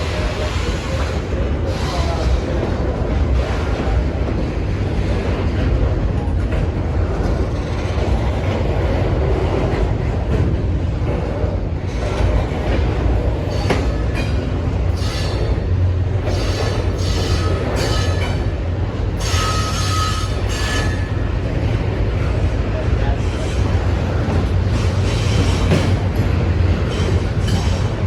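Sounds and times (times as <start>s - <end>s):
train wheel squeals and clicks: 0.0s - 2.8s, 11.9s - 21.7s, 23.2s - 28.0s
freight train wheels rumbling: 0.0s - 28.0s.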